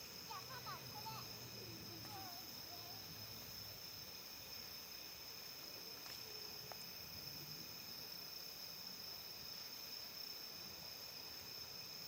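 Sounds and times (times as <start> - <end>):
campfire crackles: 0.0 - 9.4
high-pitched insect trill: 0.0 - 12.0.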